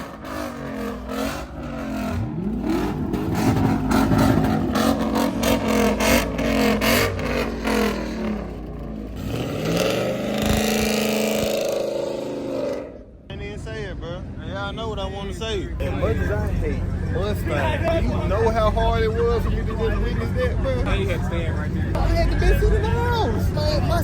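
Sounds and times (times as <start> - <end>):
exhaust crackle: 0.0 - 13.2
car engine revving: 0.0 - 13.3.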